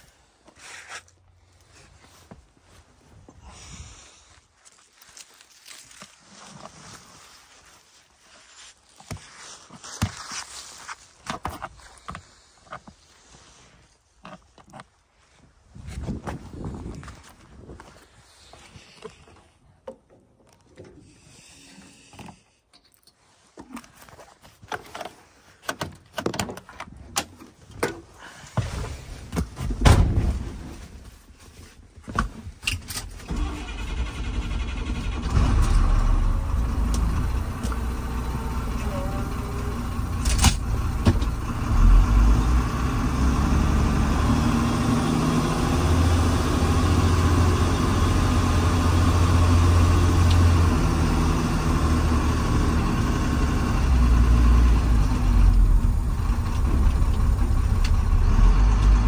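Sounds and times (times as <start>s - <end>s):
diesel engine running: 33.3s - 59.0s.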